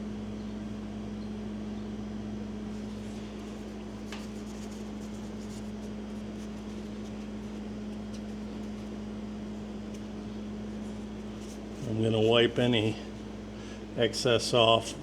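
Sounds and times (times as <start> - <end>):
rubbing sounds: 2.9 - 9.0, 10.8 - 11.9.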